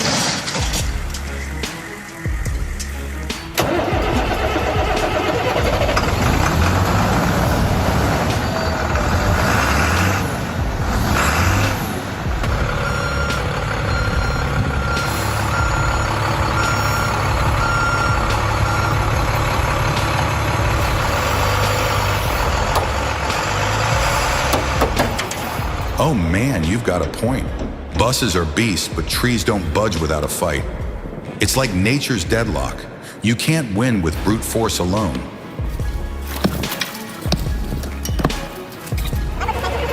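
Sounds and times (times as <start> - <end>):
heavy vehicle engine running: 0.0 - 28.2
reversing alarm beeping: 0.8 - 26.1.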